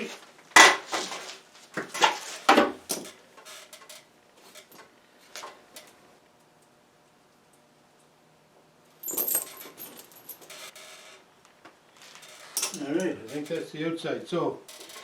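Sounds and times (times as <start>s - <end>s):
tyre chains clanking: 9.0s - 10.9s.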